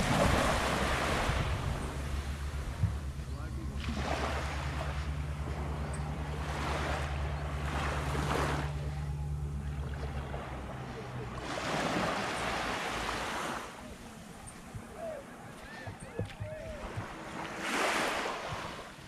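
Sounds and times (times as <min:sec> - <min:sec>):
low engine hum: 0:00.0 - 0:19.0
small waves washing onto beach: 0:00.0 - 0:19.0.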